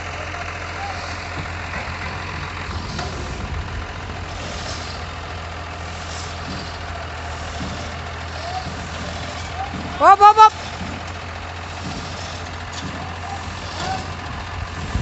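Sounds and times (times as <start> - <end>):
truck diesel engine running: 0.0 - 15.0
hiss: 5.8 - 9.5.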